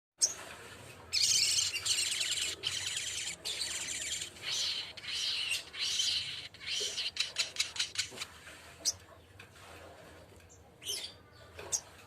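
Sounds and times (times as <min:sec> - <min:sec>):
songbird chattering song: 0:01.1 - 0:08.2.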